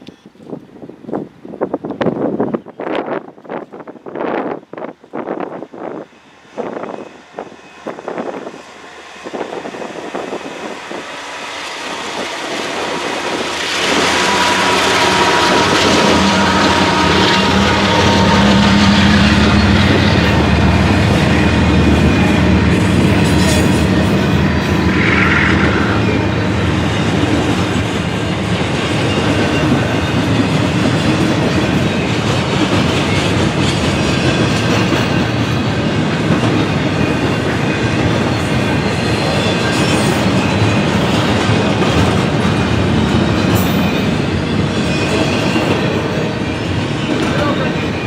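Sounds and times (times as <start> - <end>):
freight train wheels clacking: 6.6 - 48.0
high-pitched tone: 23.6 - 27.2.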